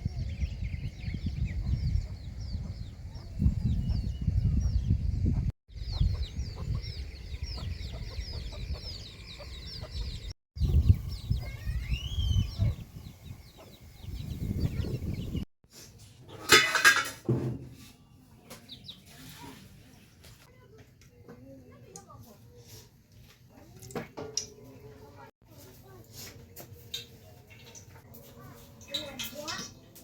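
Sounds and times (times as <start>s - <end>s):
chickens cheeping: 0.1s - 15.4s.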